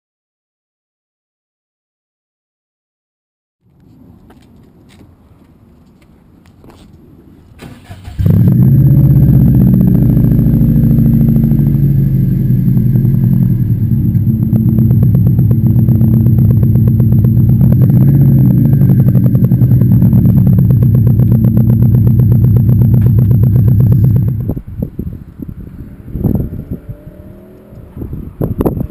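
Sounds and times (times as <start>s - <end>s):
car engine starter cranking: 7.6s - 8.6s
car engine idling: 8.1s - 24.7s.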